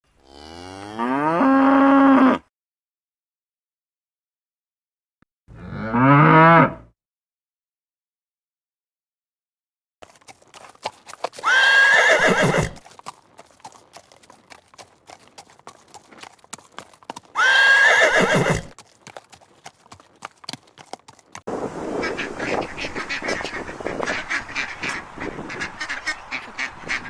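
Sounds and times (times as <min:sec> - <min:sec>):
hoof clip-clops: 0:10.0 - 0:27.0
horse neighing: 0:10.1 - 0:19.2.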